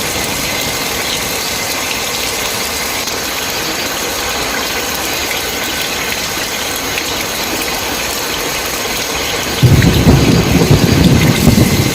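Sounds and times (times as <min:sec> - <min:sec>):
heavy rain: 0:00.0 - 0:11.9
thunder rumble: 0:09.5 - 0:11.9.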